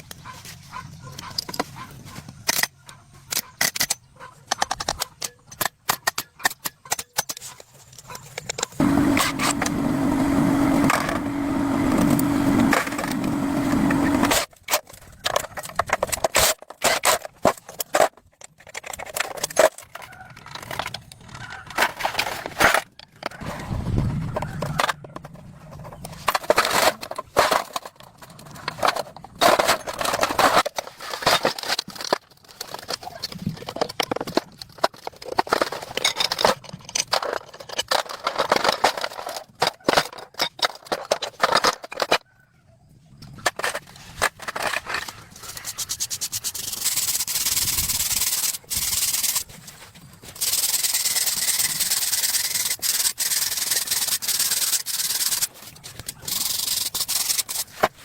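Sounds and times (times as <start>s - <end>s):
hand tools on metal parts: 2.4s - 23.5s, 43.2s - 58.0s
mechanical hum: 8.8s - 14.5s.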